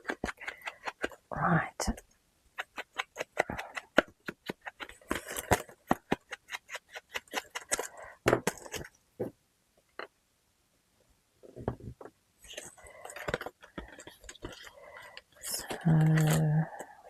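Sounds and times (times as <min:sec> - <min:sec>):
small objects being handled: 0:02.6 - 0:10.2, 0:11.4 - 0:17.0.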